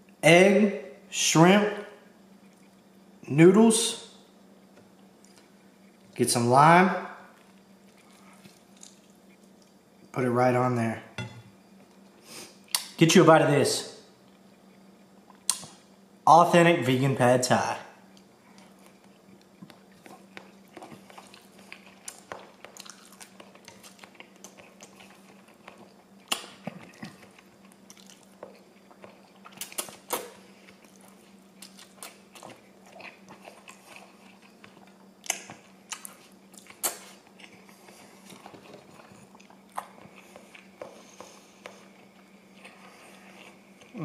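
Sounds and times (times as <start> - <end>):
faint low hum: 0.0 - 44.0
person chewing noodles: 7.3 - 9.8, 18.1 - 44.0.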